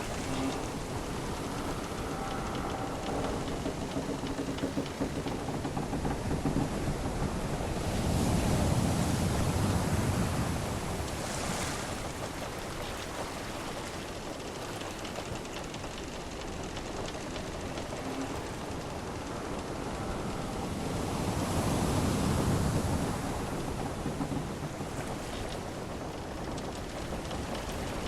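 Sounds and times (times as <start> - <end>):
sea waves washing: 0.0 - 28.0.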